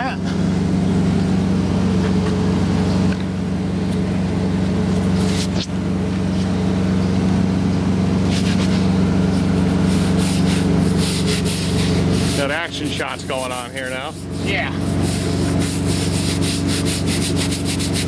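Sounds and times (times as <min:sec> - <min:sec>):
diesel engine idling: 0:00.0 - 0:18.0
high-pitched scrapes: 0:08.3 - 0:18.0.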